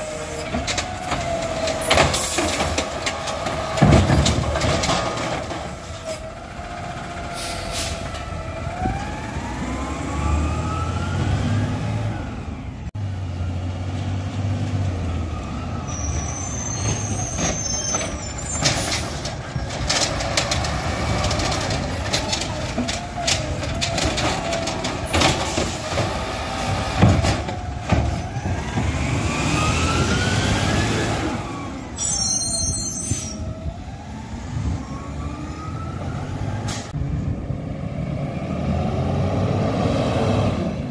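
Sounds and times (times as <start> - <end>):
diesel truck engine whining: 0.0 - 40.9
air brake hisses: 7.4 - 8.1.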